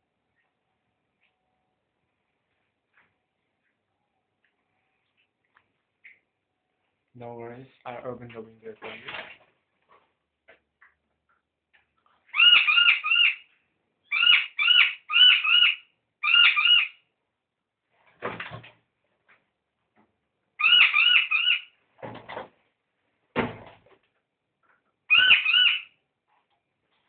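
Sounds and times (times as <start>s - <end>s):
bird piercing calls: 12.3s - 17.0s, 20.6s - 21.8s, 25.1s - 26.0s.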